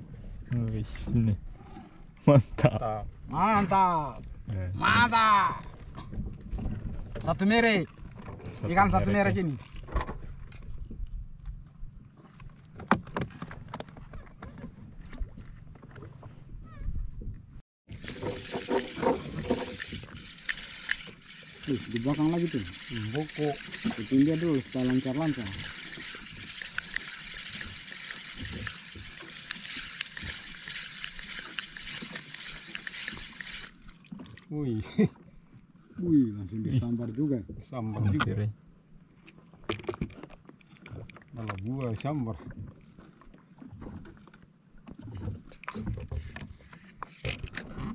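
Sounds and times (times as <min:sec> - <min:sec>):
knocks and clicks on boat: 0:12.6 - 0:16.3
sea water hissing: 0:18.0 - 0:33.9
small clicks: 0:19.4 - 0:33.8.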